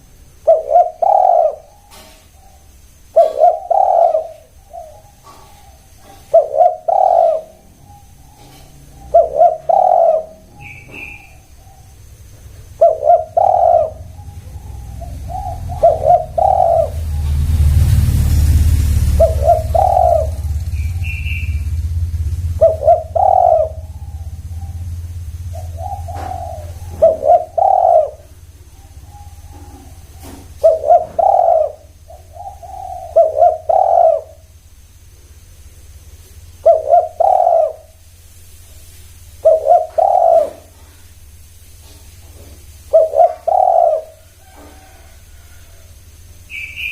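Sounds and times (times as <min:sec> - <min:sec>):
doves cooing: 0:00.0 - 0:38.1, 0:39.1 - 0:46.9
low rumble: 0:10.2 - 0:30.9.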